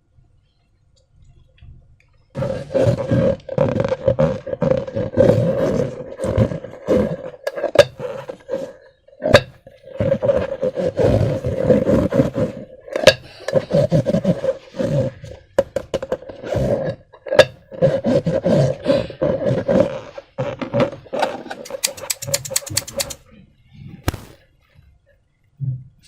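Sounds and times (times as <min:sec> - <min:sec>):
slime crackling pops: 0:24.0 - 0:24.4.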